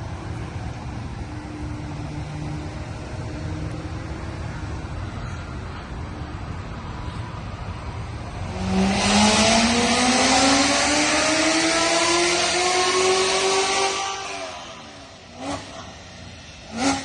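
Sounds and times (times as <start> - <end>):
car engine revving on dyno: 8.4 - 15.9, 16.7 - 17.0.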